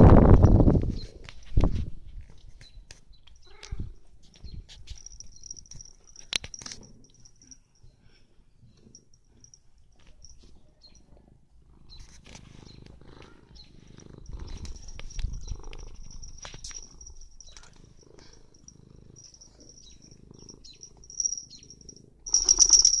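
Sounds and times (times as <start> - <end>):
cat purring: 11.0 - 22.9
thin high tone: 19.2 - 23.0.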